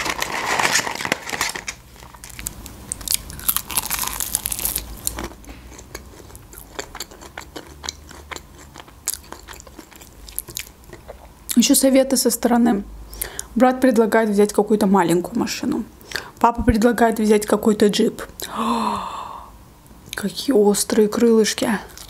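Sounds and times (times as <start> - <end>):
crunching fried chicken: 0.0 - 11.2.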